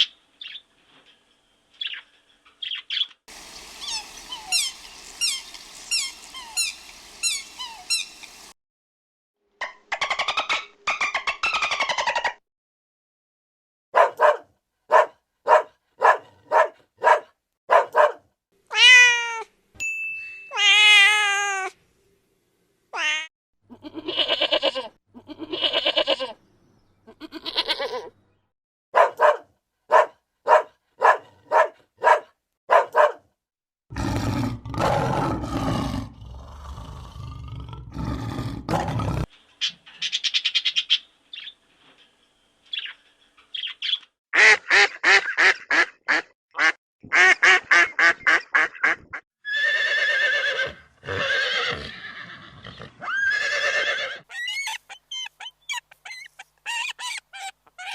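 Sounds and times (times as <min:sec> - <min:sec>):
rough animal call: 0:33.9 - 0:39.3, 0:49.5 - 0:57.9
long wavering animal calls: 0:53.0 - 0:57.9.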